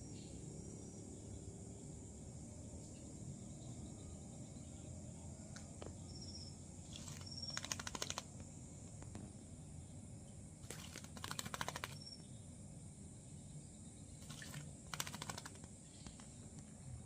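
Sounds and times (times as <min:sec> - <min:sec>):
bird peeping: 0:06.0 - 0:08.2
bird wings fluttering: 0:06.9 - 0:08.4, 0:10.6 - 0:12.1, 0:14.2 - 0:16.4.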